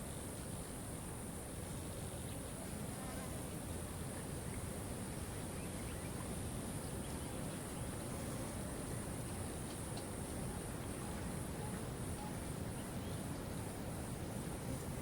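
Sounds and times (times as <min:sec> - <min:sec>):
faint bird chirps: 0:04.2 - 0:13.4.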